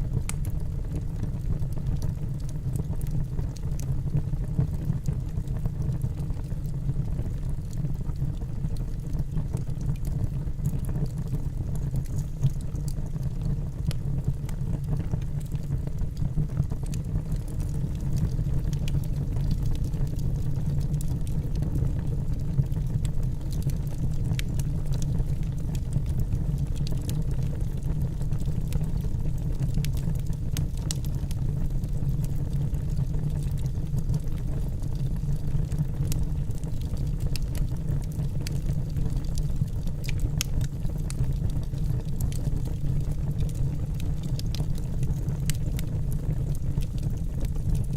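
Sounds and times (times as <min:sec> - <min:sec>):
fire rumbling: 0:00.0 - 0:47.9
wood crackling: 0:44.3 - 0:45.8.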